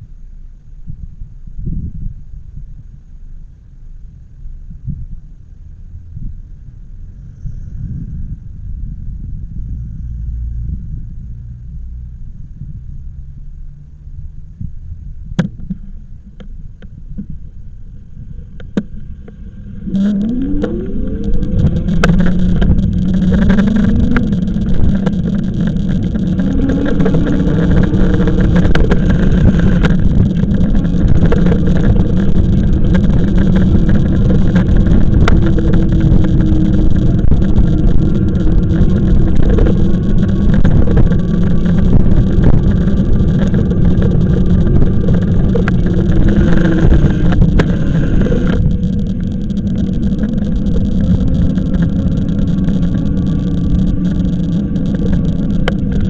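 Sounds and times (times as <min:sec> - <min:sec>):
wind rumble on microphone: 0:00.0 - 0:56.0
electric motor whine: 0:18.0 - 0:56.0.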